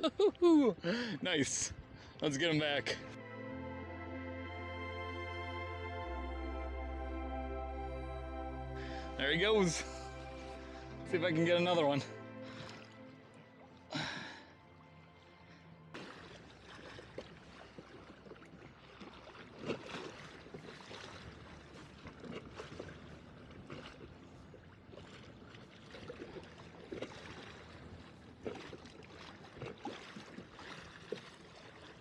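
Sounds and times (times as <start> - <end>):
water lapping against kayak hull: 9.7 - 32.0.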